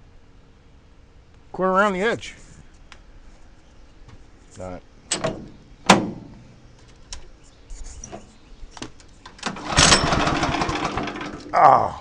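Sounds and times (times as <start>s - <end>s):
small engine cranking: 9.4s - 11.5s.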